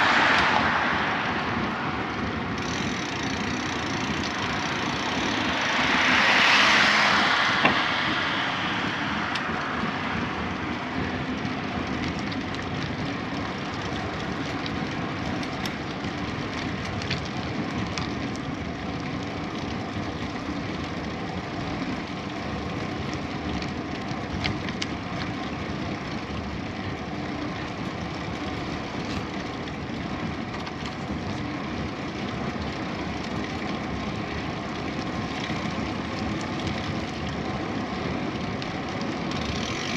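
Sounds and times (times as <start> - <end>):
whoosh: 0.0 - 2.5
wind rushing: 0.0 - 11.3
bicycle tyre noise: 0.0 - 39.9.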